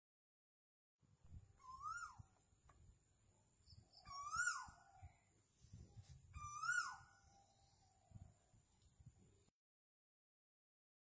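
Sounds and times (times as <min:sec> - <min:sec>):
bird swooping call: 0:01.6 - 0:02.3, 0:04.0 - 0:04.9, 0:06.3 - 0:07.9.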